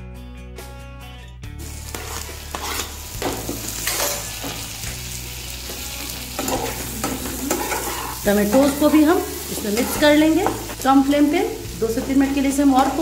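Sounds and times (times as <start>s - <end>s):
food sizzling in a pan: 1.6s - 13.0s
spatula scraping a pan: 1.9s - 4.4s, 6.3s - 10.8s.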